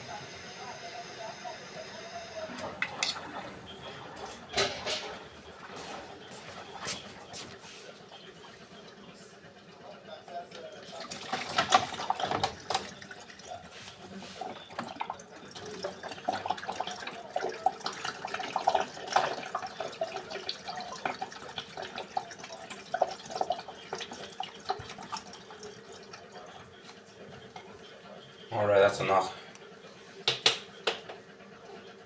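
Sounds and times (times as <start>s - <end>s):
water pouring and splashing: 10.8s - 26.6s.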